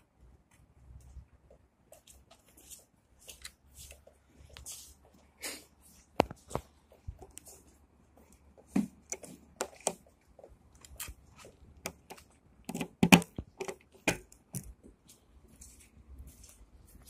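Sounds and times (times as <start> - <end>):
handling clicks and rustles: 6.0 - 17.0.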